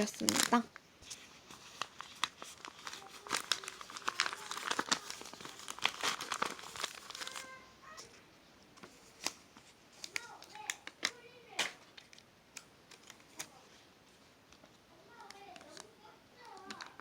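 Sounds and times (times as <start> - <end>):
paper envelope rustling: 0.0 - 8.0, 8.8 - 11.2.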